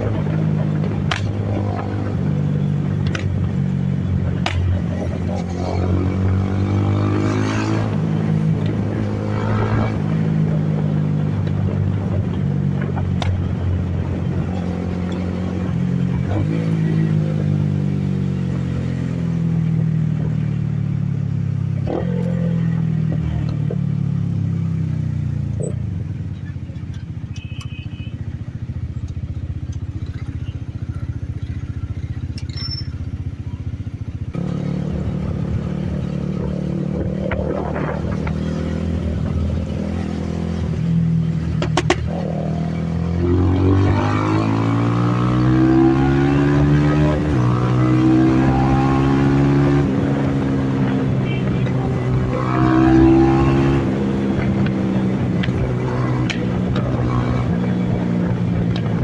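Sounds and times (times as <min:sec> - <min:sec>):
wind noise: 0:00.0 - 0:18.0, 0:34.4 - 0:59.0
motorcycle engine running: 0:00.0 - 0:59.0.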